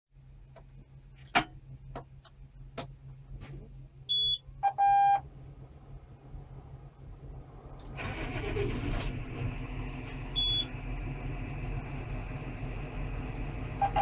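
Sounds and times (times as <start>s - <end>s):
short warning beeps: 4.1s - 5.2s, 10.4s - 10.7s.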